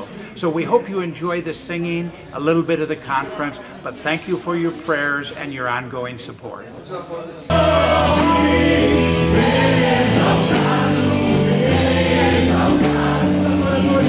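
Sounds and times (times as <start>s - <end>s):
choir singing worship song: 7.5s - 14.0s
instrumental backing: 7.5s - 14.0s.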